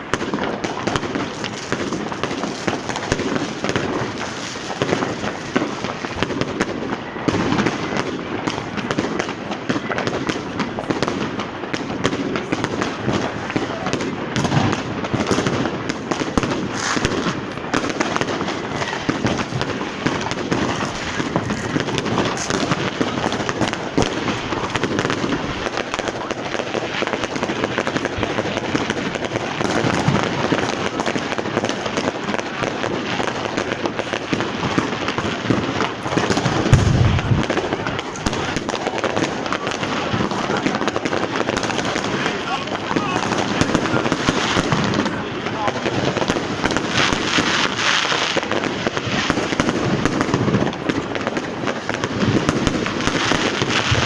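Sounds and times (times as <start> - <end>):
firecrackers crackling: 0.0 - 54.0
deep firework bang: 36.2 - 40.7, 52.3 - 54.0.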